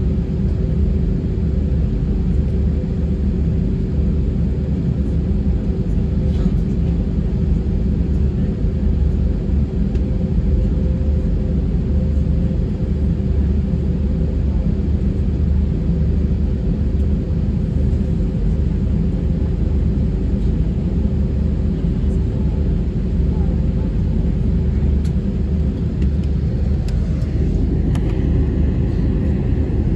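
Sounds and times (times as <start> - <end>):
aircraft cabin rumble: 0.0 - 29.9
faint steady hums: 17.0 - 29.9.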